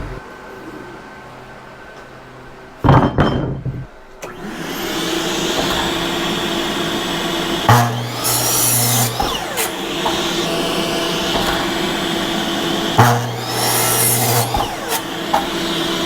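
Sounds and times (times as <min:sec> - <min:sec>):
electric power tool running: 0:04.2 - 0:16.0.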